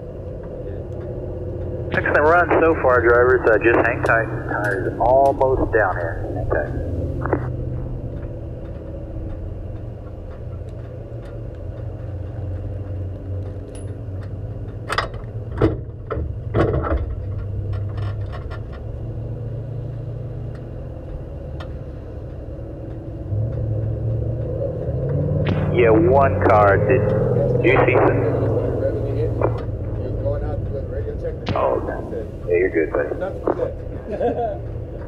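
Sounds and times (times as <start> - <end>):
sharp clicks and knocks: 7.2 - 18.9.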